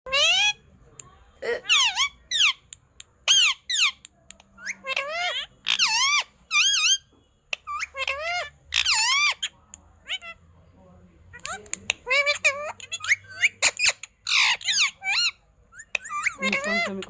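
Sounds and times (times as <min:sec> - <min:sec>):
parrot squeaky calls: 0:00.1 - 0:00.7, 0:01.4 - 0:10.5, 0:11.3 - 0:17.0.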